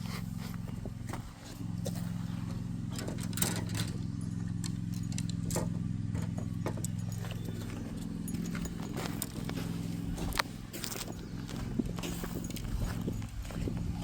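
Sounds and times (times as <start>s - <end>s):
footsteps on creek stones: 0.0s - 2.9s, 6.2s - 14.0s
steady low hum: 0.0s - 14.0s.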